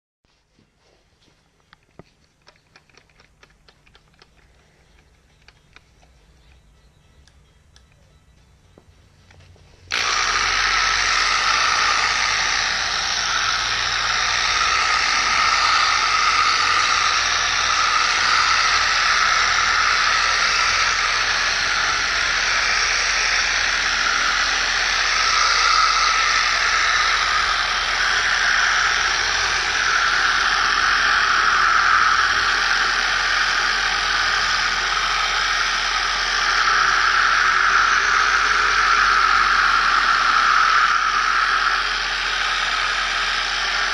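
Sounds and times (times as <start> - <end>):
power sander hissing: 9.8 - 43.9.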